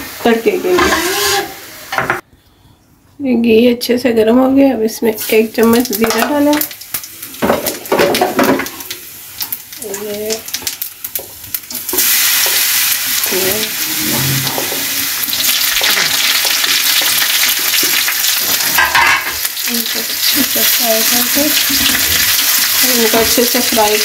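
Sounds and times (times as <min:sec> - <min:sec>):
loud steady sizzle: 0:00.0 - 0:02.0, 0:05.0 - 0:24.0
seeds crackling in hot fat: 0:05.3 - 0:13.7, 0:15.2 - 0:24.0.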